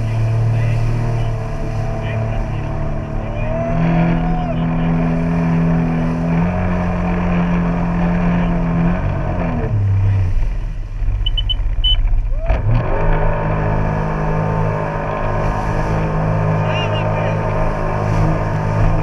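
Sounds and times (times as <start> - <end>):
jet ski engine running: 0.0 - 19.0
short high beeps: 11.2 - 12.0.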